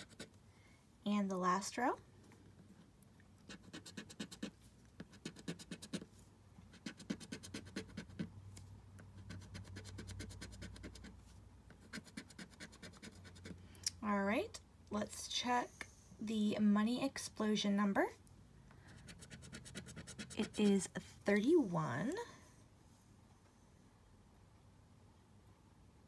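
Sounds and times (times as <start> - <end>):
scratching lottery ticket: 0.0 - 0.3, 3.4 - 6.1, 6.7 - 8.3, 9.1 - 13.6, 19.0 - 21.0.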